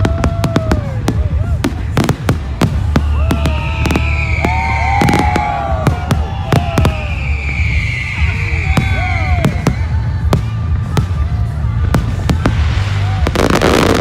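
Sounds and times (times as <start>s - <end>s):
fireworks bangs: 0.0s - 14.0s
fireworks crackling: 0.0s - 14.0s
falling firework whistle: 2.7s - 10.0s.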